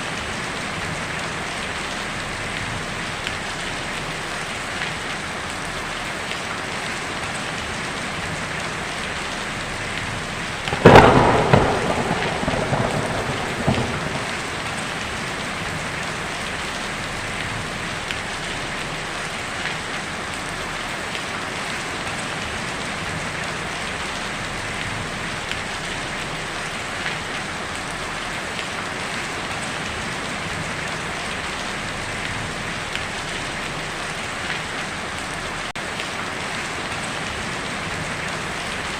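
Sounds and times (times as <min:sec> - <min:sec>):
heavy rain on a tin roof: 0:00.0 - 0:38.9
loud thunderclap rumbling: 0:10.6 - 0:17.5.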